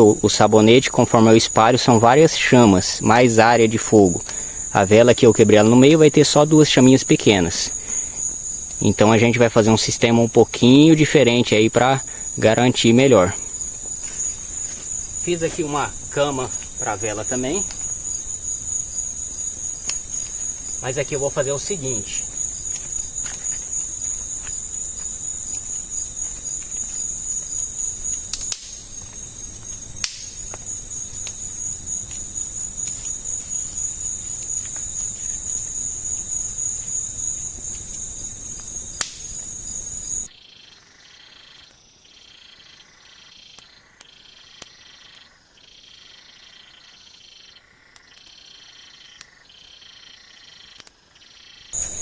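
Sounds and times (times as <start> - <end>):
high-pitched insect chorus: 0.0 - 52.0
sharp snaps: 19.8 - 20.4, 28.1 - 31.4, 37.7 - 39.3, 50.7 - 51.0.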